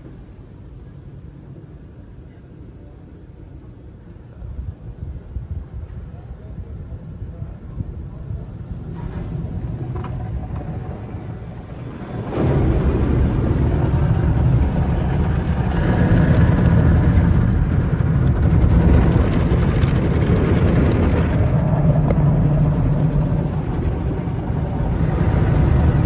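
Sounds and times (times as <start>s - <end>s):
car wash deep rushing noise: 0.0s - 26.0s.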